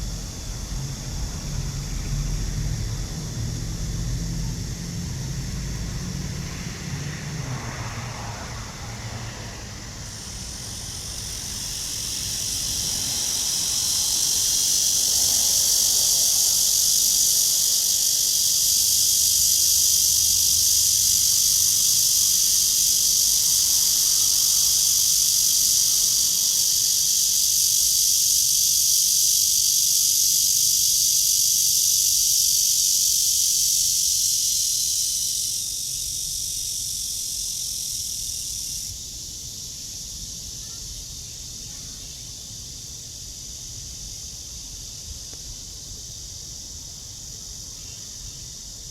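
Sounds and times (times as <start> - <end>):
cicadas buzzing: 0.0 - 48.9.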